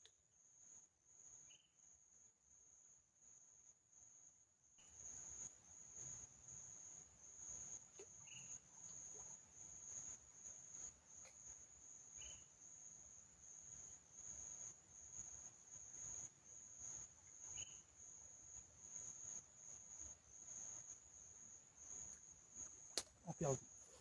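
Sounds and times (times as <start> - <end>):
insect trilling: 22.8 - 23.8.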